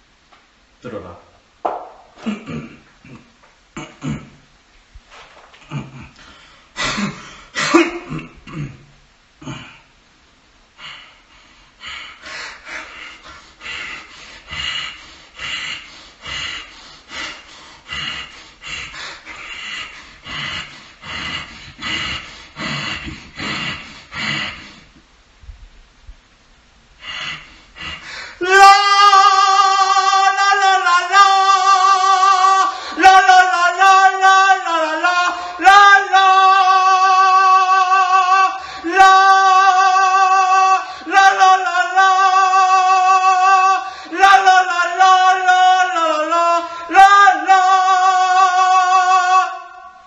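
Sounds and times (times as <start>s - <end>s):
man singing la la la: 28.4s - 50.0s.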